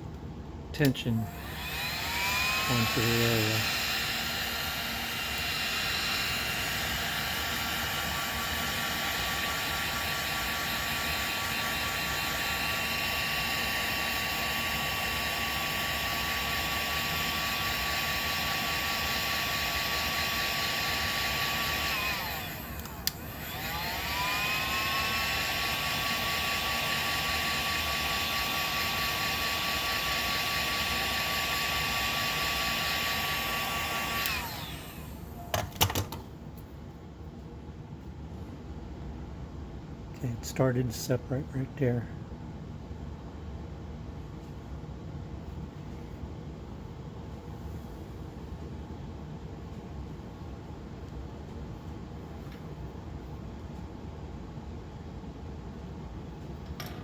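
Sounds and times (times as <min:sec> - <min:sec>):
heat gun blowing: 0:01.2 - 0:35.4.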